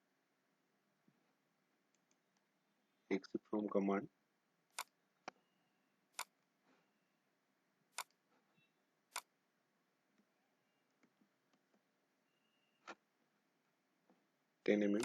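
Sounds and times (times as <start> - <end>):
computer mouse clicks: 8.0 - 8.2.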